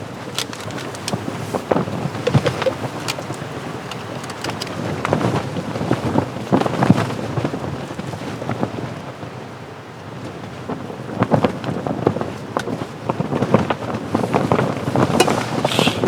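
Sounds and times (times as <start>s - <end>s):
tent fabric flapping and snapping: 0.0s - 7.5s, 12.6s - 16.0s
gusty wind: 0.0s - 16.0s.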